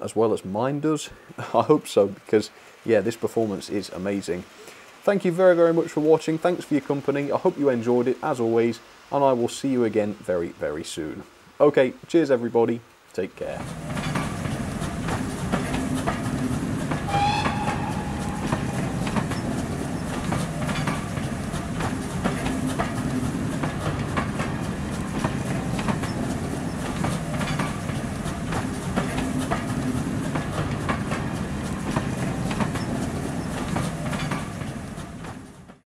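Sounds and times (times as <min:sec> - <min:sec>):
train rumbling past: 0:13.4 - 0:35.8
wheels clacking over rail joints: 0:13.4 - 0:35.8
train wheel squeal: 0:16.9 - 0:21.2.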